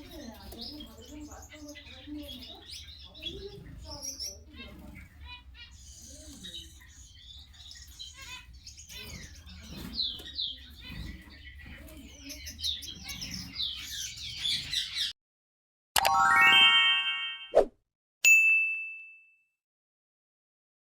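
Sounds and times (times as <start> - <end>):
finches chirping: 0.0 - 15.1.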